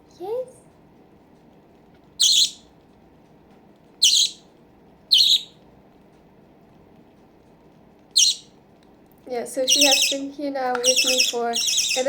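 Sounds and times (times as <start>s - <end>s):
baby budgerigar squawking: 2.2s - 2.7s, 4.0s - 4.4s, 5.1s - 5.6s, 8.2s - 8.5s, 9.6s - 12.0s.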